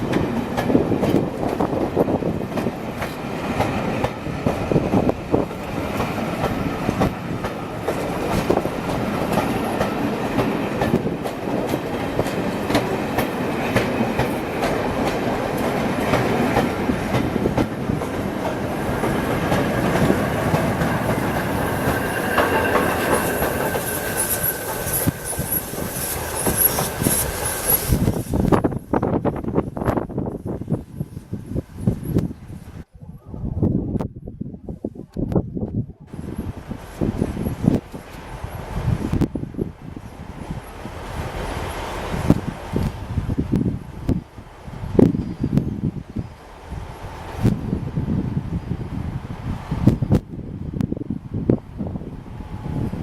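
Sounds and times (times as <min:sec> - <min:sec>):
railway wheels clicking over joints: 0:00.0 - 0:30.3.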